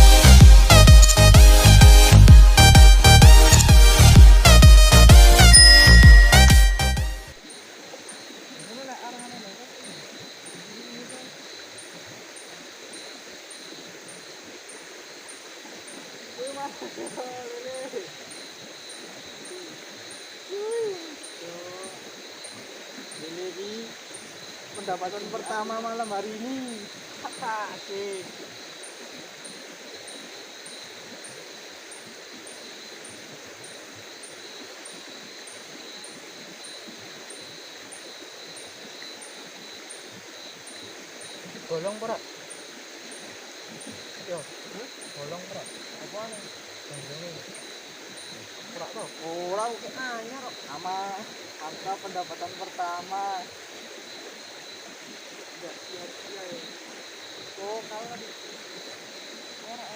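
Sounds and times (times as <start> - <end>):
insect high chirping: 0.0 - 59.9
faint hiss: 5.4 - 59.9.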